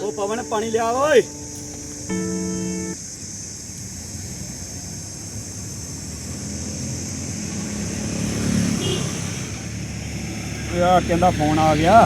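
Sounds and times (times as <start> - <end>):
steady high hiss: 0.0 - 5.7
vehicle passing on road: 6.0 - 12.0.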